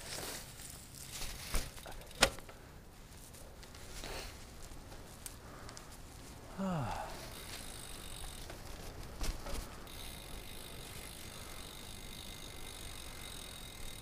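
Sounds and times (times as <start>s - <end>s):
bicycle rolling: 0.0s - 14.0s
freewheel hub ticking: 7.3s - 8.8s, 9.4s - 14.0s.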